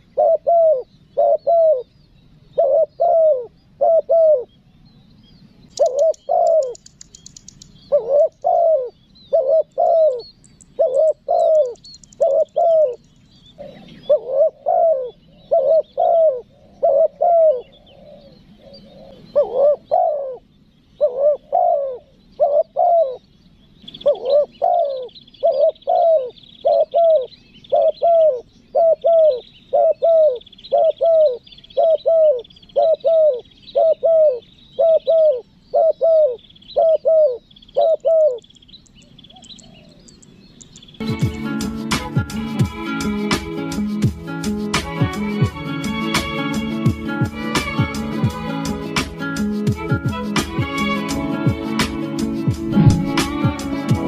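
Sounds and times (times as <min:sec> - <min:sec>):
dove cooing: 0:00.0 - 0:01.9, 0:02.5 - 0:04.5, 0:05.7 - 0:23.2, 0:24.0 - 0:38.5, 0:39.3 - 0:40.2, 0:49.4 - 0:54.0
small birds chirping: 0:00.0 - 0:54.0
rapid high buzz: 0:51.8 - 0:54.0.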